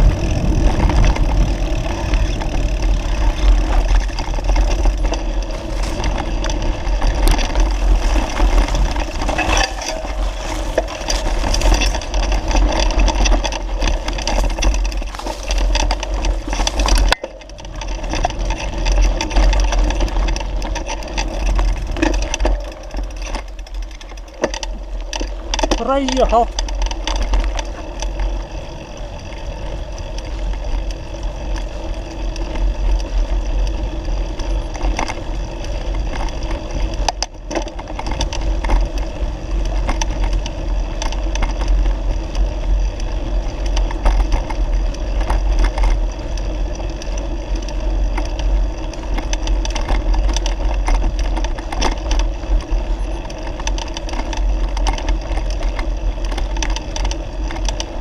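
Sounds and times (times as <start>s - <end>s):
heavy low rumble: 0.0s - 27.7s
bicycle rolling on dirt track: 0.0s - 58.0s
knocks and rattles over bumps: 0.0s - 58.0s.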